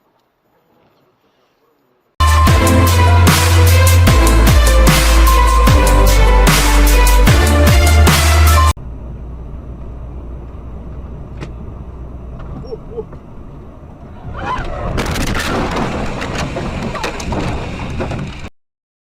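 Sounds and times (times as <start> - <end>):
road and engine rumble inside car: 8.8 - 14.8
clattering noise: 14.4 - 18.5.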